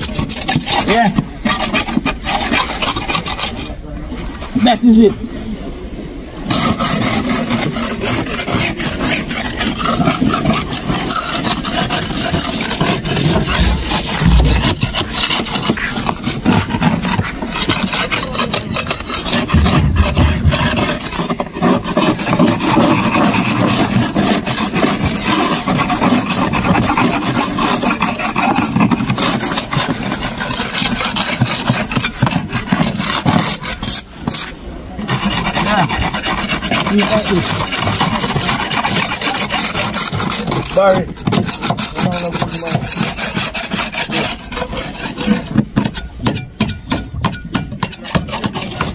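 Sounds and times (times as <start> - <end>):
rough scraping strokes: 0.0 - 4.8, 6.5 - 48.9
heavy low thumps: 13.4 - 15.1, 19.6 - 20.8.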